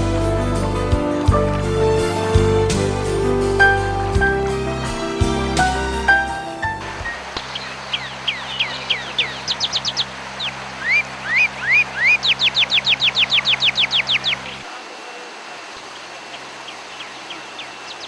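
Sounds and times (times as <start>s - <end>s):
songbird singing: 0.0s - 14.6s, 15.8s - 18.0s.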